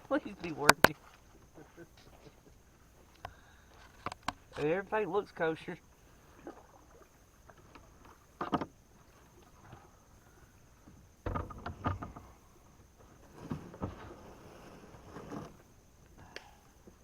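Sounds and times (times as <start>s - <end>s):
knocks and bumps on a kayak: 7.6s - 9.8s, 10.8s - 15.7s.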